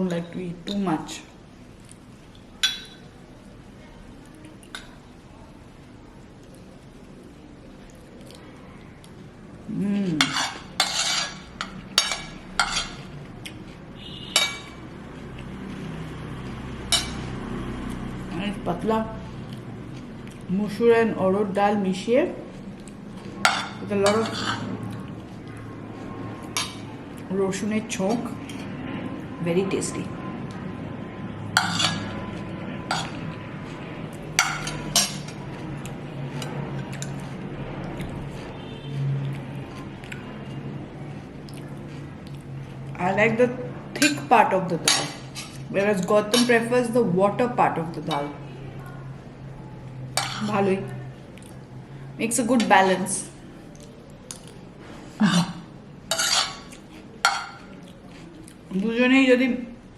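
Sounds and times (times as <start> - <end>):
cutlery clinking on dishes: 2.6 - 3.1, 10.2 - 13.1, 14.4 - 14.8, 23.4 - 24.7, 31.6 - 32.1, 32.9 - 33.3, 34.4 - 35.4, 50.2 - 50.5, 56.1 - 57.9.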